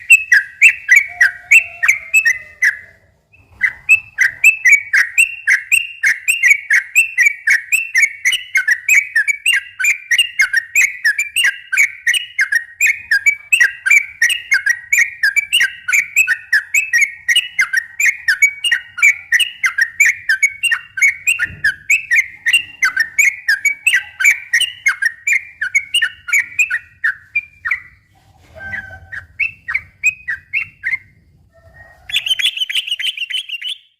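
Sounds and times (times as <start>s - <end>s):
bird singing whistled notes: 0.0s - 28.0s, 28.6s - 31.1s, 32.1s - 33.9s.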